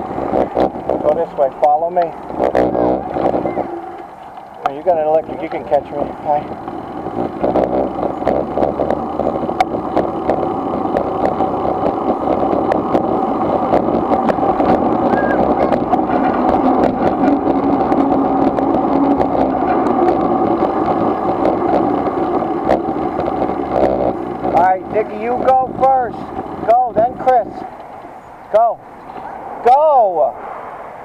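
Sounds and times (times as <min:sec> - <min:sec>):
small clicks and rattles: 0:00.0 - 0:28.1
bikes whirring: 0:00.0 - 0:31.0.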